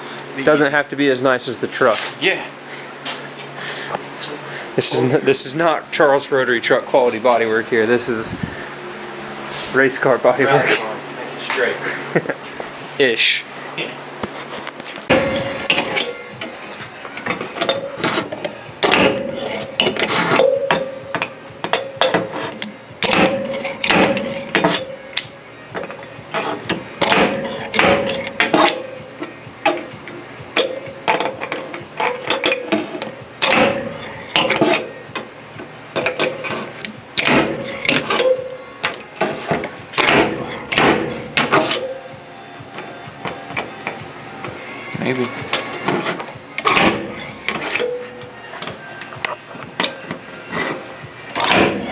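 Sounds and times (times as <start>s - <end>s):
hammer on sheet metal: 23.0s - 25.0s.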